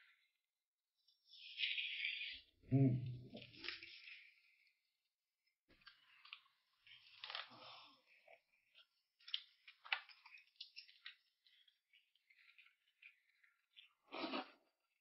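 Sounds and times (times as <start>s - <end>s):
crunching and chewing food: 3.3s - 15.0s.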